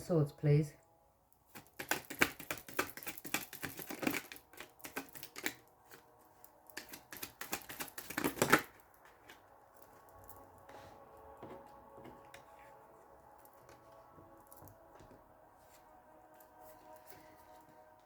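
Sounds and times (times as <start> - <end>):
faint background music: 0.0 - 18.0
cards being shuffled: 1.5 - 9.5.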